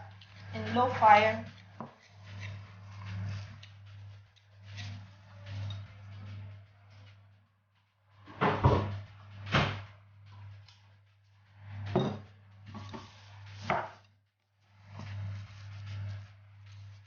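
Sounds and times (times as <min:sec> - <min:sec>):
kitchen items knocking and banging: 0:08.3 - 0:09.8, 0:11.9 - 0:14.0.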